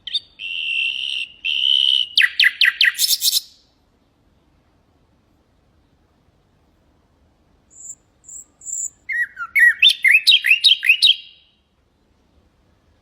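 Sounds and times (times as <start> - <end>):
nightingale singing: 0.0 - 3.8, 7.7 - 11.7.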